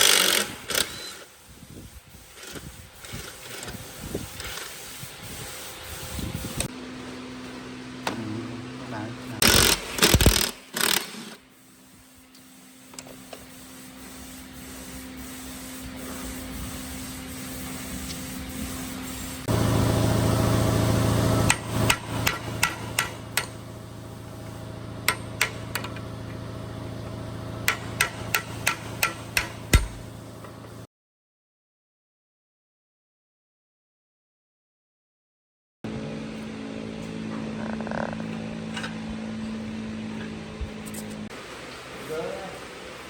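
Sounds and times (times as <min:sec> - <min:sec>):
small motor running: 0:00.0 - 0:01.3, 0:09.4 - 0:11.4.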